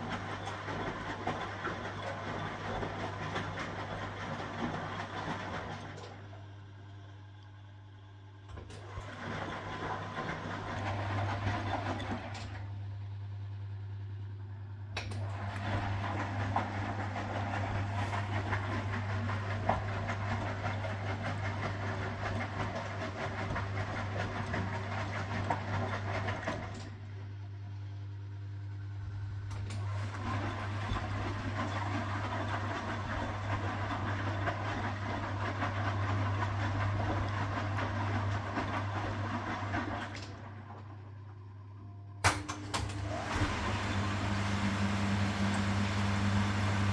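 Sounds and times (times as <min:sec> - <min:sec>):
washing machine rattling: 0:08.8 - 0:12.5, 0:15.2 - 0:27.0, 0:29.6 - 0:40.6.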